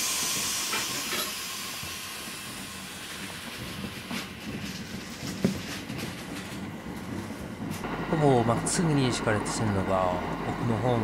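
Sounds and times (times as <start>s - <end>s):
train hiss: 0.0s - 5.2s
train wheels clicking on rail joints: 0.0s - 11.0s.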